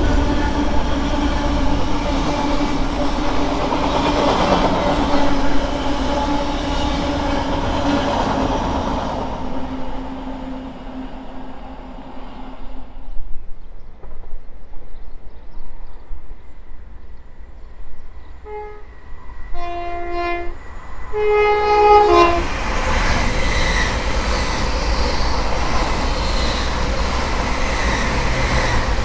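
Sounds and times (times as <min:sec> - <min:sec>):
train horn blasts: 0:00.0 - 0:03.6, 0:04.8 - 0:08.3, 0:18.4 - 0:22.6
train passing at speed: 0:00.0 - 0:29.0.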